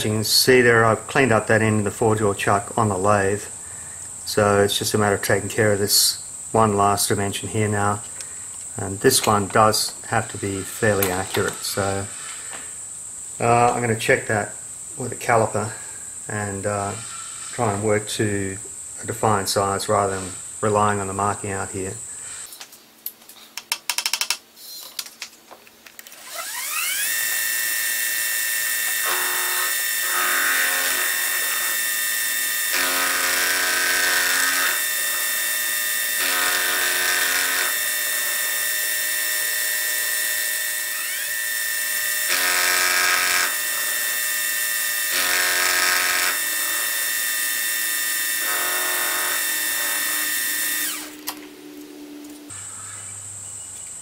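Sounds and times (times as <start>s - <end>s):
milling machine spindle whine: 26.2s - 52.5s
end mill cutting brass: 26.3s - 52.5s.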